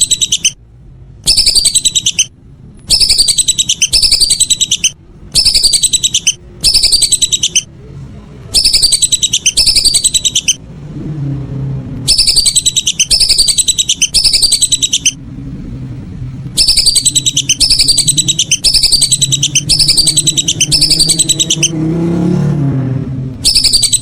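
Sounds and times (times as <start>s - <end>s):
ducks whistling calls: 0.0s - 0.6s, 1.3s - 2.3s, 2.9s - 7.7s, 8.6s - 10.6s, 12.1s - 15.2s, 16.6s - 21.8s, 23.4s - 24.0s.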